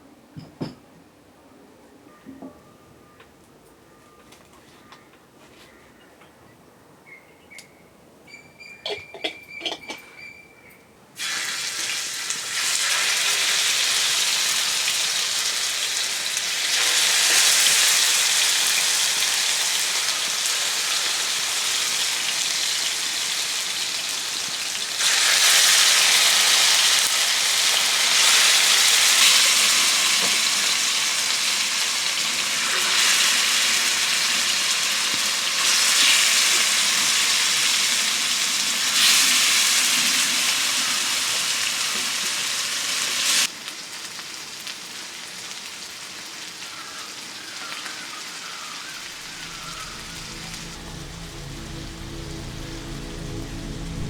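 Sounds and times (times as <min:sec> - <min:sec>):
food sizzling in hot oil: 0:11.2 - 0:46.5.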